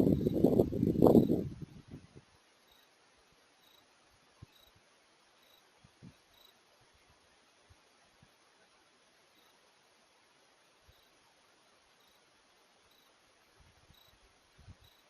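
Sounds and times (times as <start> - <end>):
soft insect chirp: 2.4 - 6.8, 8.6 - 15.0
high-pitched insect trill: 13.9 - 14.2.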